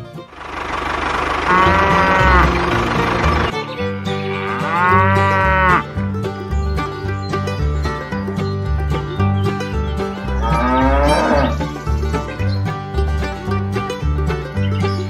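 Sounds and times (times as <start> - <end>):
plucked-string background music: 0.0 - 15.0
cow mooing: 1.4 - 3.5, 4.2 - 5.9, 10.4 - 11.6.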